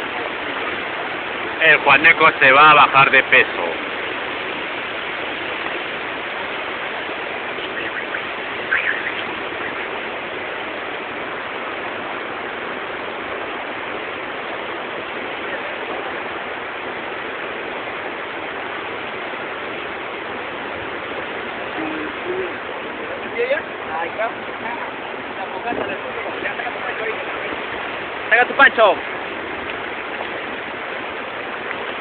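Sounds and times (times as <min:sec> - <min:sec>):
bonfire hissing: 0:01.0 - 0:10.6.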